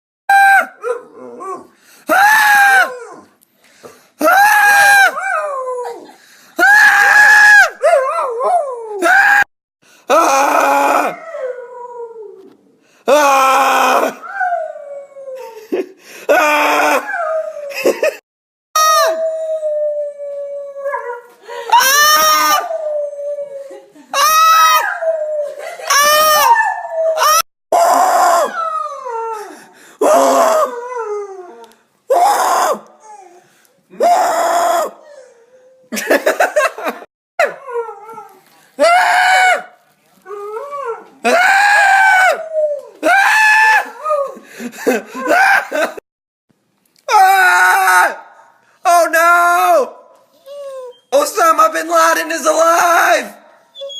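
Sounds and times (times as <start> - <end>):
dog howling: 2.4 - 3.3, 10.4 - 12.5, 24.4 - 33.4
person screaming: 10.1 - 11.2, 13.1 - 14.2, 16.3 - 17.1, 21.7 - 22.7, 27.2 - 28.6, 30.0 - 30.7, 32.1 - 32.9, 34.0 - 35.0, 41.2 - 42.4, 47.1 - 48.3.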